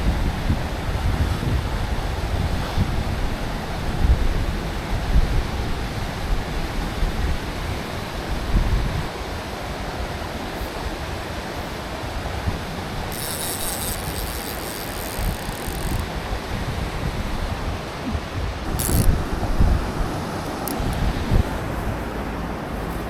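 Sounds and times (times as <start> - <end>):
stream water rushing: 5.6 - 23.0
wind buffeting microphone: 12.4 - 23.0.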